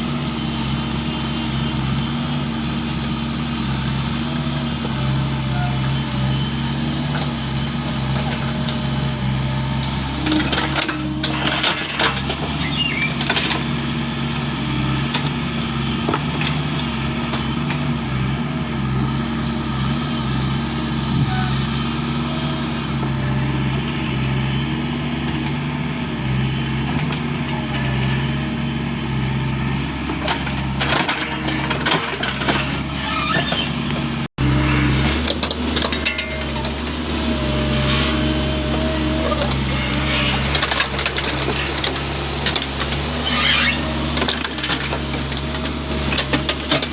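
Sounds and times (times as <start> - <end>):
diesel engine running: 0.0 - 46.9
metal clanks and knocks: 30.1 - 37.1.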